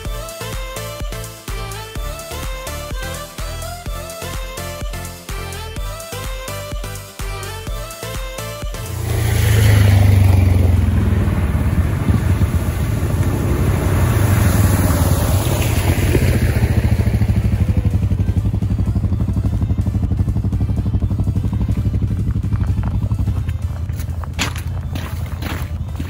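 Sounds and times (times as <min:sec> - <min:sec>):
quad engine running: 0:00.0 - 0:26.0
water spraying: 0:08.9 - 0:17.8.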